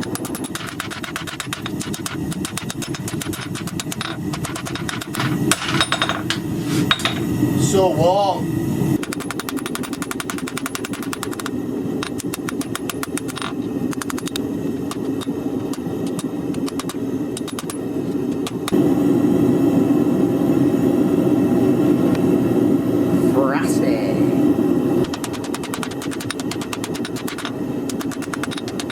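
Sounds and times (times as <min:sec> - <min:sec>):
forge rushing noise: 0:21.2 - 0:28.9.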